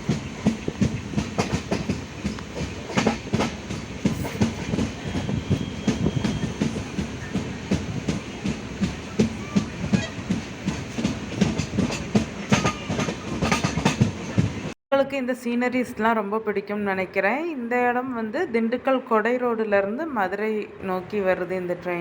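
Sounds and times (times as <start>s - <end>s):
wheels clattering over rail joints: 0.0s - 14.7s
train rumbling on track: 0.0s - 14.8s.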